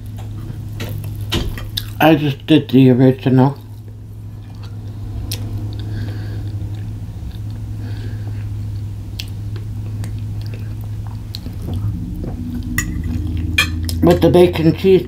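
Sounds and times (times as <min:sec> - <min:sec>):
low hum: 0:00.0 - 0:15.0
person chewing: 0:00.8 - 0:02.0, 0:03.5 - 0:14.0.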